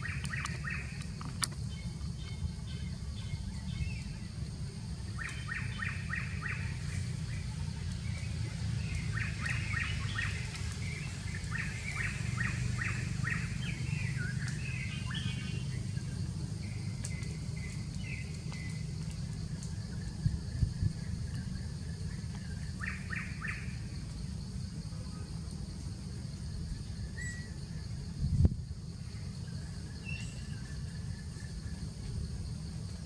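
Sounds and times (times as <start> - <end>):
birds chirping: 0.0 - 4.3, 5.1 - 18.8.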